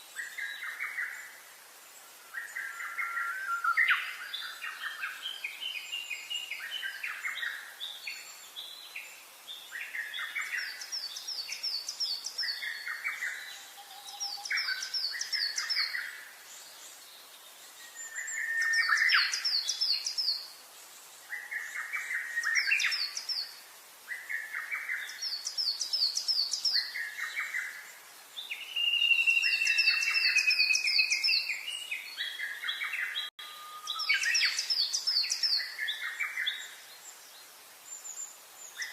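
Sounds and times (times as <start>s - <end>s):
birds singing: 0.0s - 38.9s
whistled bird note: 33.4s - 34.7s.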